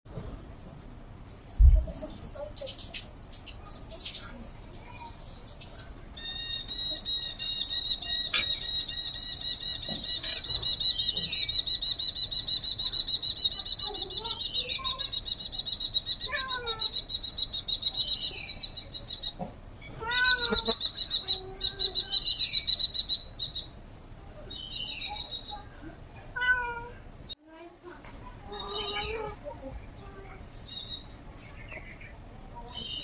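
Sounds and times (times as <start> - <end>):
rapid high-pitched chirping: 4.7 - 19.4, 20.1 - 23.8
low mewing calls: 19.2 - 22.2.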